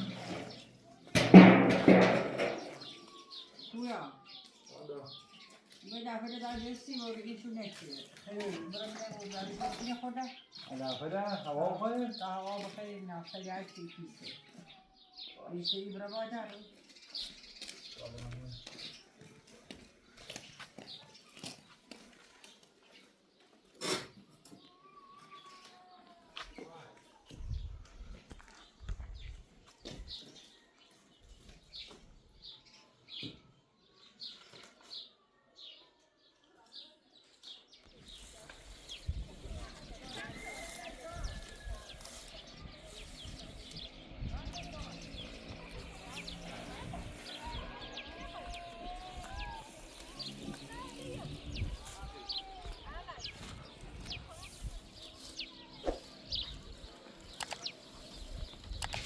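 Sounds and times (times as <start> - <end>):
sharp clicks: 57.3 - 57.8, 58.6 - 59.0.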